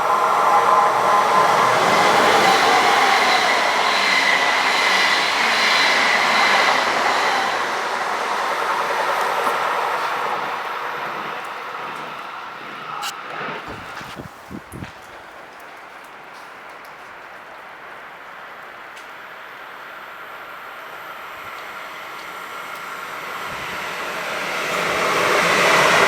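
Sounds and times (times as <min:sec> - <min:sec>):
steady whine: 0:00.0 - 0:15.1
train rail rumble: 0:00.0 - 0:16.8.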